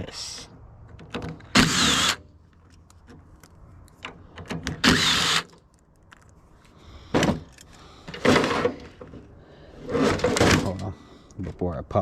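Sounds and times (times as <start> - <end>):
cordless drill running: 1.6 - 2.2, 4.8 - 5.5.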